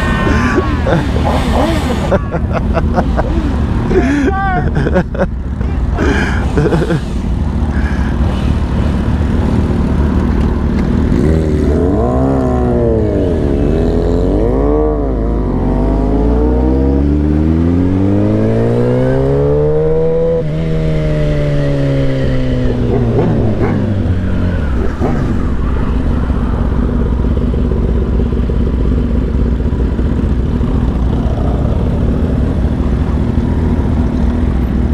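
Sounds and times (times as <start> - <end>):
engine revving: 7.7 - 29.0.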